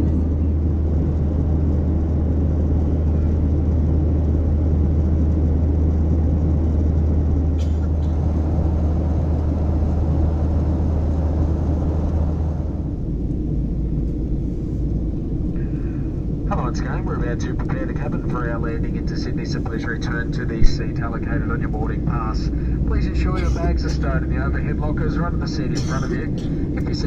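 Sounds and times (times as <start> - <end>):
engine and airflow rumble: 0.0 - 27.0.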